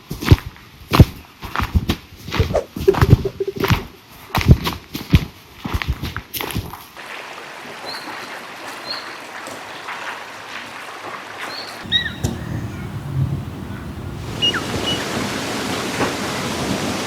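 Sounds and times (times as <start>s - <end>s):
high bird chirps: 11.8s - 15.4s
loud bird call: 11.8s - 17.0s
steady rushing outdoor noise: 11.8s - 17.0s.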